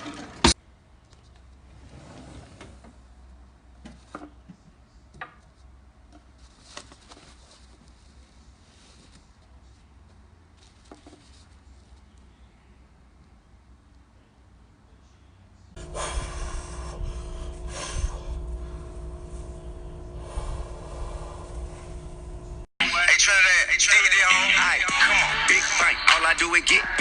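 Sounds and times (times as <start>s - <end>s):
low steady hum: 11.7s - 22.7s.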